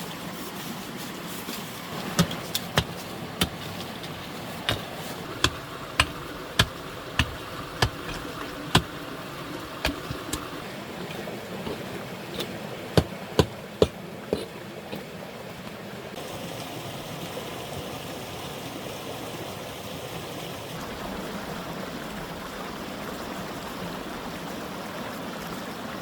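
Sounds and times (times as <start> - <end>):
hand tool striking sharply: 4.7 - 8.9.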